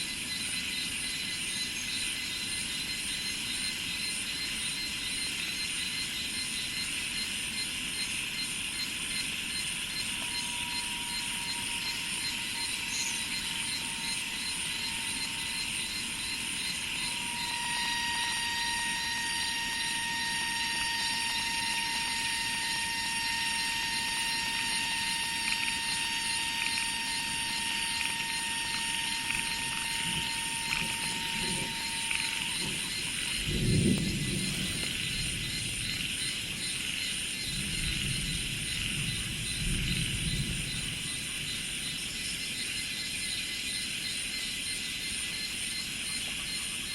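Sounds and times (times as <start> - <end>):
high-pitched insect chorus: 0.0 - 46.9
thin sustained tone: 8.0 - 37.3.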